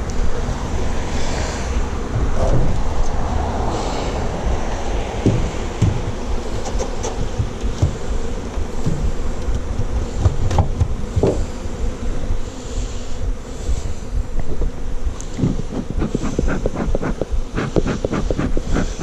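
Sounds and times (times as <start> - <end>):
honeybees buzzing: 0.0 - 19.0
knocks on beehive: 5.2 - 6.2, 7.0 - 8.1, 8.7 - 11.5.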